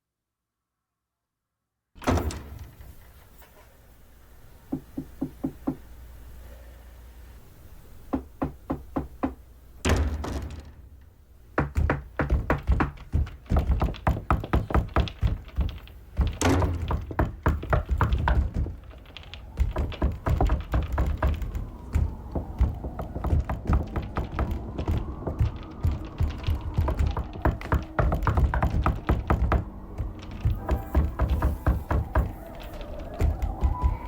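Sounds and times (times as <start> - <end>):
heavy knocking on a door: 4.7 - 5.8, 8.1 - 10.7, 11.6 - 34.0.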